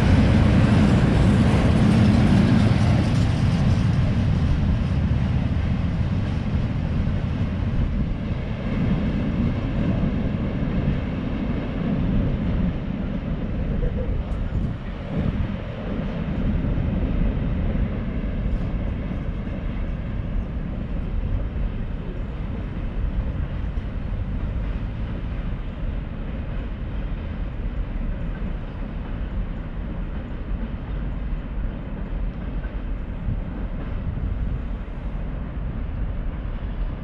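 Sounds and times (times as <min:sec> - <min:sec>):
train rumbling: 0:00.0 - 0:37.0.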